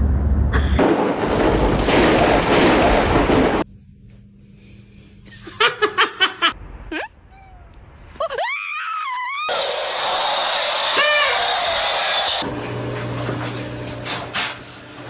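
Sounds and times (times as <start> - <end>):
person giggling: 5.3 - 7.2.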